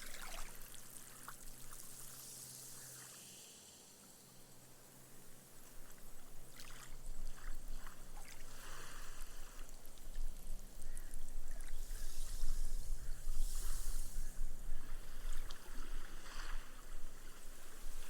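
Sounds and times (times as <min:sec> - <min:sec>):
gentle waves washing on sand: 0:06.0 - 0:18.0.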